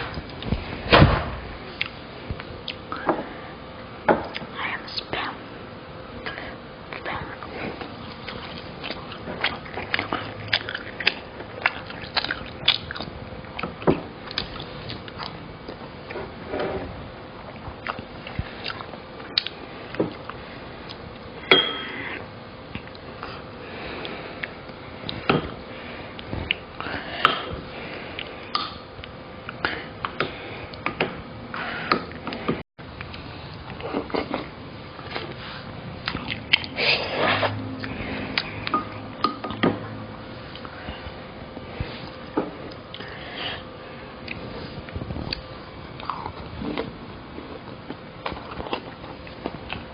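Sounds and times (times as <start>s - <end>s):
faint steady hum: 0.0s - 49.9s
person chewing food: 7.2s - 16.8s, 17.4s - 25.3s, 31.8s - 39.6s, 44.2s - 49.9s.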